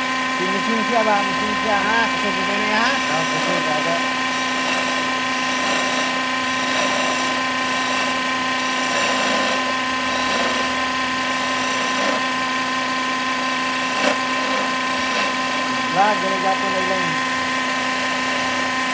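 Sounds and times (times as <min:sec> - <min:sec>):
lathe motor humming and whining: 0:00.0 - 0:18.9.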